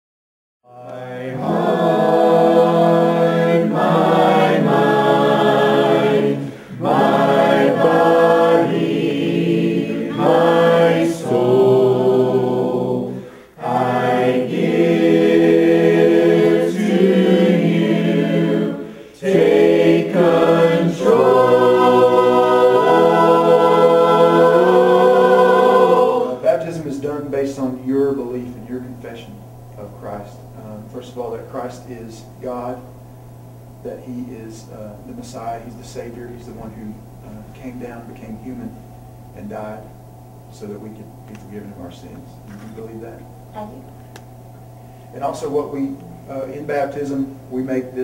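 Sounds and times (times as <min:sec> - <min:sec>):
group singing a hymn a cappella: 0:00.7 - 0:29.2.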